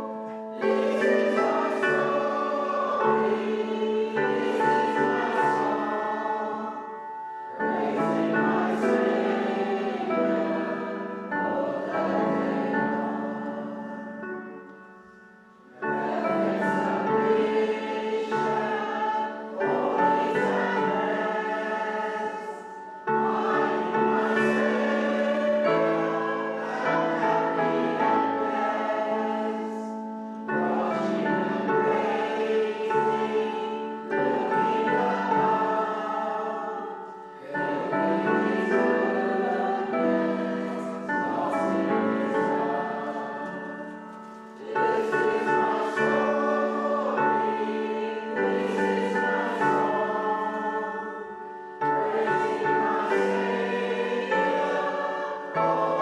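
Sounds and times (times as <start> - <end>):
choir singing a hymn: 0.0 - 56.0
instrumental accompaniment: 0.0 - 56.0.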